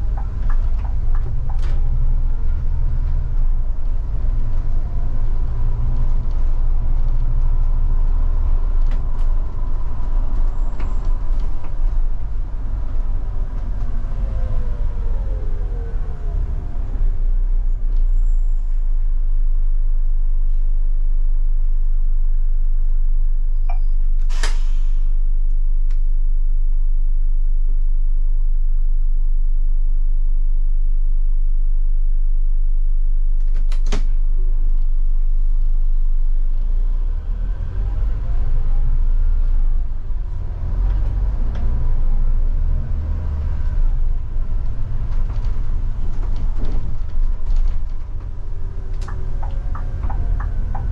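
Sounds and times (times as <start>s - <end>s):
short air hiss: 24.3s - 25.2s
bus diesel engine idling: 44.0s - 50.9s.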